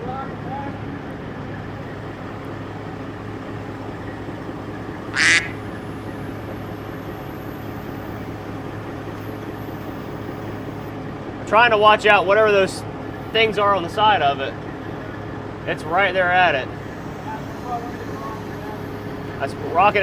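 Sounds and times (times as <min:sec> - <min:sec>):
diesel engine running: 0:00.0 - 0:20.0
sharp high squawk: 0:04.5 - 0:08.4.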